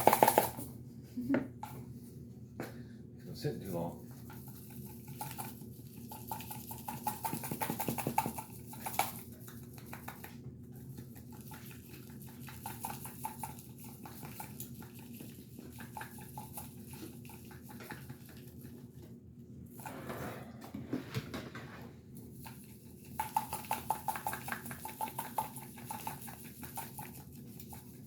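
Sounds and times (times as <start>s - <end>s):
seasoning granules rattling in container: 0.0s - 0.6s, 4.4s - 10.1s, 11.3s - 18.1s, 22.4s - 28.0s.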